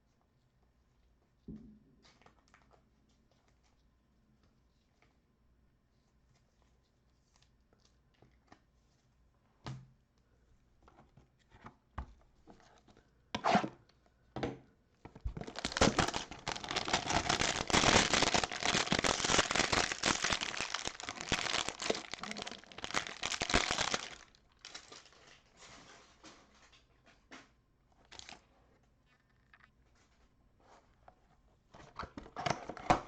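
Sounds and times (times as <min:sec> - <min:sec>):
plastic wrapper tearing and crinkling: 0:15.3 - 0:25.5, 0:28.0 - 0:28.4.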